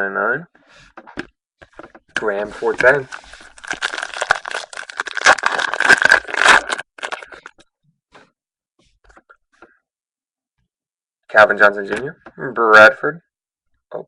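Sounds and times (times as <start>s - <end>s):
wrapper torn open and crinkled: 3.1s - 7.6s.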